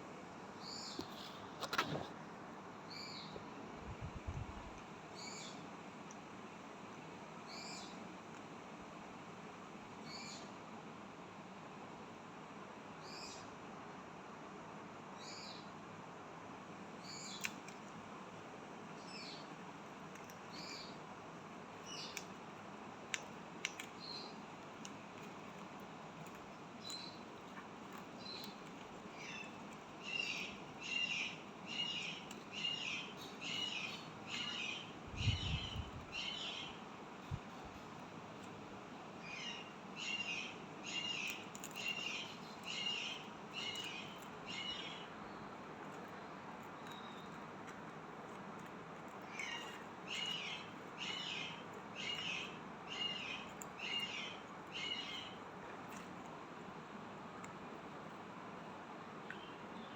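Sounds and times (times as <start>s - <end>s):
parakeet chirping: 28.2s - 36.8s, 39.2s - 45.1s, 49.2s - 55.4s.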